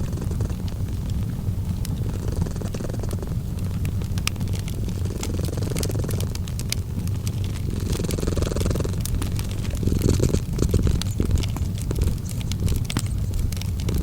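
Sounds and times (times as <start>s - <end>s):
cat purring: 0.0s - 14.0s
fireplace crackling and popping: 0.0s - 14.0s.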